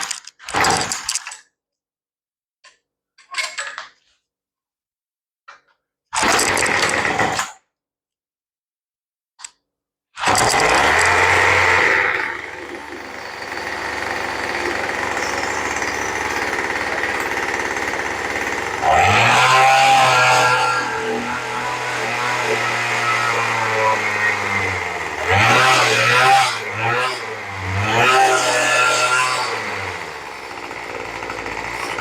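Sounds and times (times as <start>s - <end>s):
small engine revving and idling: 10.3s - 32.0s.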